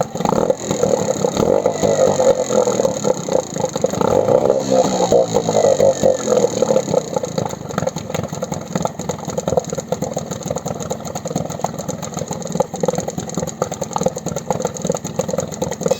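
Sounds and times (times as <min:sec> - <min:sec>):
outboard boat motor idling: 0:00.0 - 0:15.9.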